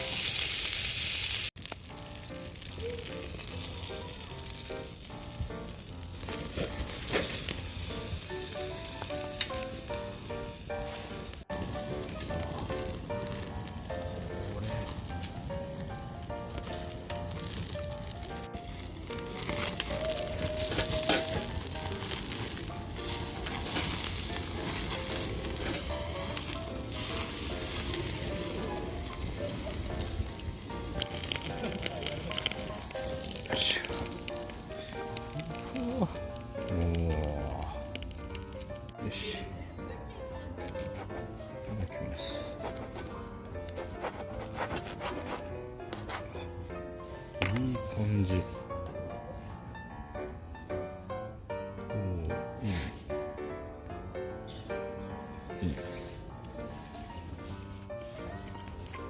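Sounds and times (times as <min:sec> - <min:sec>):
food sizzling in a pan: 0:00.0 - 0:15.4, 0:16.6 - 0:37.7
light instrumental music: 0:01.6 - 0:59.0.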